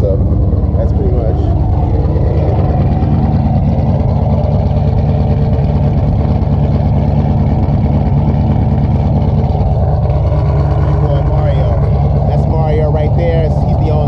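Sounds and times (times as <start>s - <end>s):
car engine idling loudly: 0.0s - 14.0s.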